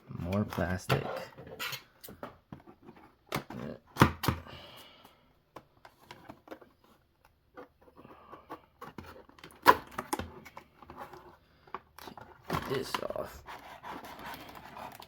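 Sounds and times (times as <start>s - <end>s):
plastic packaging crinkling and clicking: 14.1s - 15.0s.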